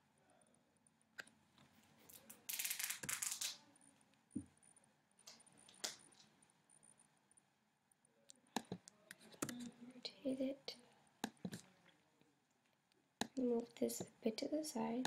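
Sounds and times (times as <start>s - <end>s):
computer mouse and keyboard clicks: 8.6s - 9.7s, 11.2s - 11.8s.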